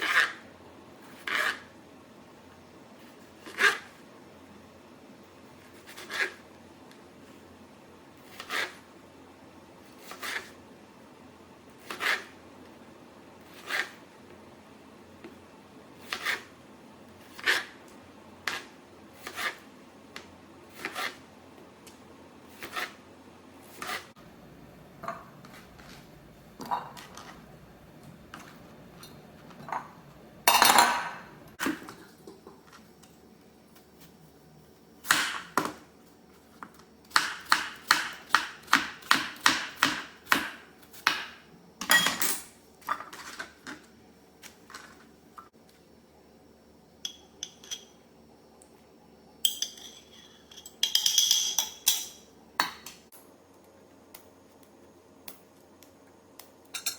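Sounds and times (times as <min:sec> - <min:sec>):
utensils knocking on dishes: 0:50.8 - 0:52.8.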